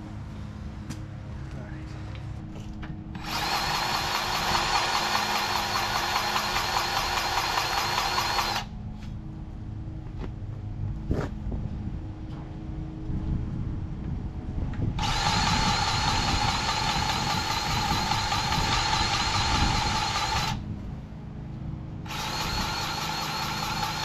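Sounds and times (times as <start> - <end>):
grease gun motor whining: 3.2 - 8.7, 15.0 - 20.6, 22.0 - 24.0.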